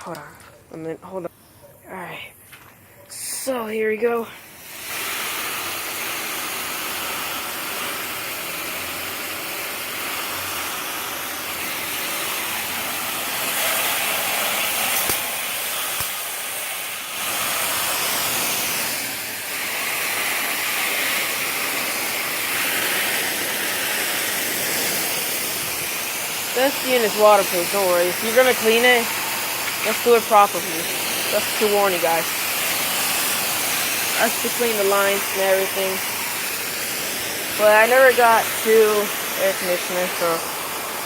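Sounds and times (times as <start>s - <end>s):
hose spraying water: 3.1s - 41.0s.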